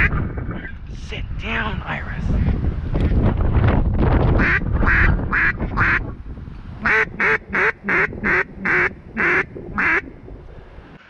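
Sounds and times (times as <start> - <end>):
duck quacking: 4.4 - 6.0, 6.8 - 10.0.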